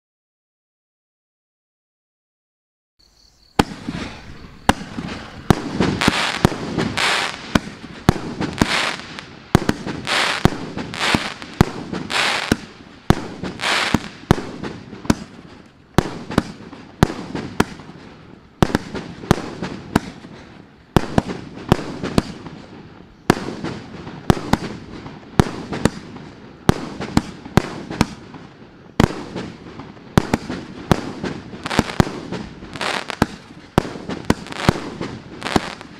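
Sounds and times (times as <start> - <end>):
firework crackle: 3.5 - 35.9
firework cake shells bursting: 3.6 - 15.4, 30.2 - 35.9.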